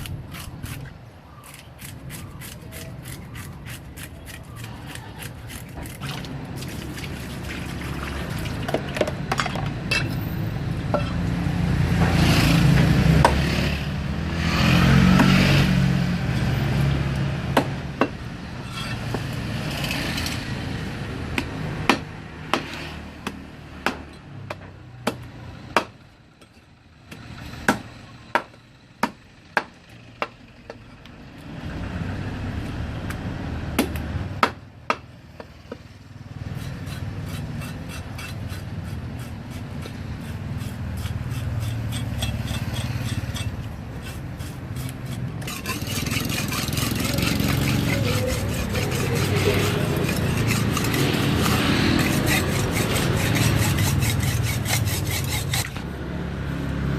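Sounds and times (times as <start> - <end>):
knife scraping fish: 0.0 - 6.8, 36.5 - 55.8.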